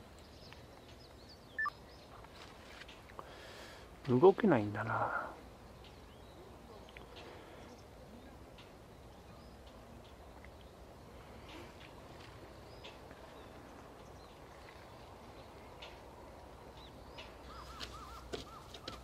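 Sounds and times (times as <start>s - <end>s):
distant birds chirping: 0.0s - 19.0s
faint outdoor hiss: 0.0s - 19.0s.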